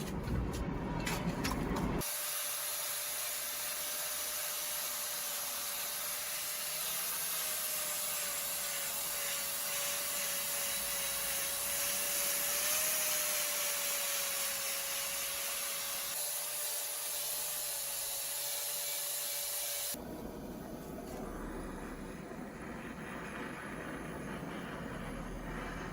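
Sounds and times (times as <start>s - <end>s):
abrasive sanding hiss: 2.0s - 20.0s
power tool motor whine: 2.0s - 20.0s.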